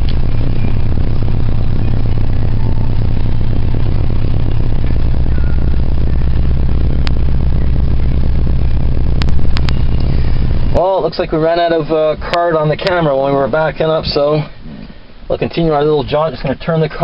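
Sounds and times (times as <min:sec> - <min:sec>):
car engine running at low revs: 0:00.0 - 0:17.0
sharp clicks: 0:09.2 - 0:10.1.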